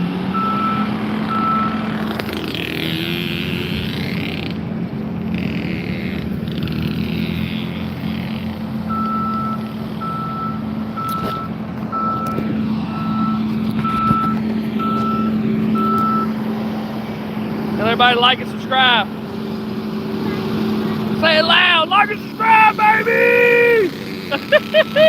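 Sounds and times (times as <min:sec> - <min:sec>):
vehicle reversing alarm beeping: 0:00.0 - 0:01.9, 0:08.8 - 0:16.4
engine hum: 0:00.0 - 0:25.0.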